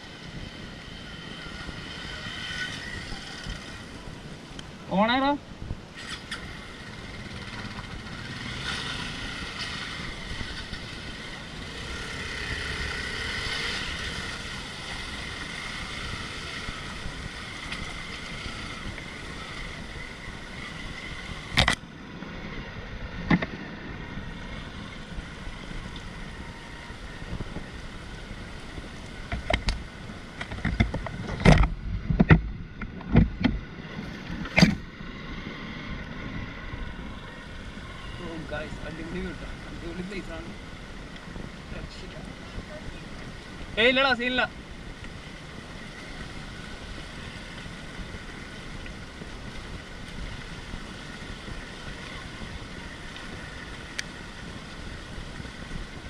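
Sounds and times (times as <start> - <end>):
motorcycle engine running: 6.2 - 21.8.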